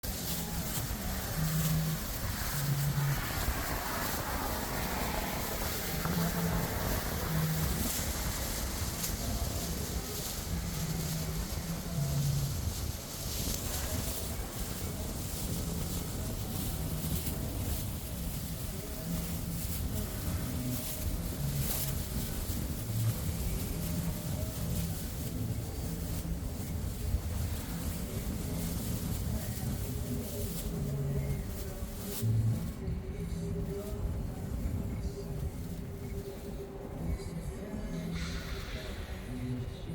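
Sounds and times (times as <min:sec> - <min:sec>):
jet engines rumbling: 0:00.0 - 0:32.9
low hum: 0:00.0 - 0:39.9
wind on microphone: 0:00.0 - 0:39.9.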